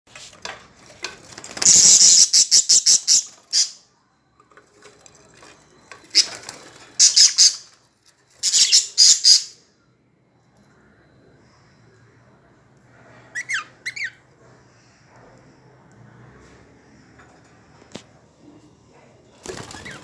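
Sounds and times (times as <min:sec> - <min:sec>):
lovebirds chirping: 0:01.6 - 0:03.9, 0:06.0 - 0:07.8, 0:08.4 - 0:09.6.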